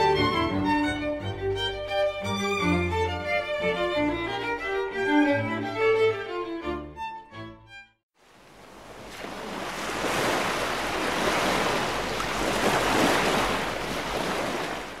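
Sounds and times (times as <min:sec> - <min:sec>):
sea surf waves washing: 0:08.2 - 0:15.0.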